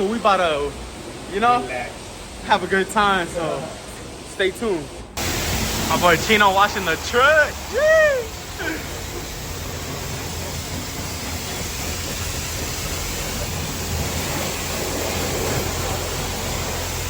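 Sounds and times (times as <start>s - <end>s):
pressure washer spray hissing: 4.1s - 17.0s.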